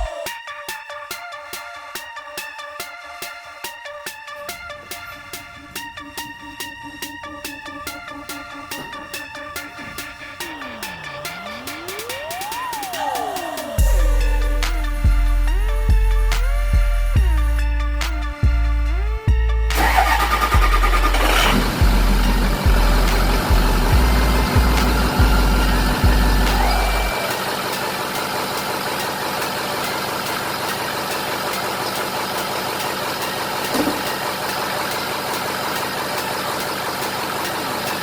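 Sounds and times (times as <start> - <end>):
music with heavy pulsing bass: 0.0 - 38.0
diesel engine idling: 4.5 - 38.0.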